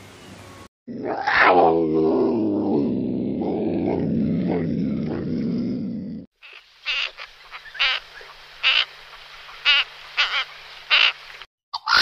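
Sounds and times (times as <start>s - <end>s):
low animal growl: 0.9s - 6.3s.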